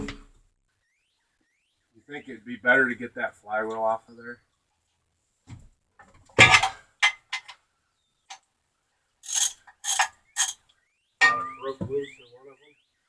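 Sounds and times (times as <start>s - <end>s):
metallic clicks and knocks: 9.2s - 10.6s
short scraping bursts: 9.2s - 10.6s.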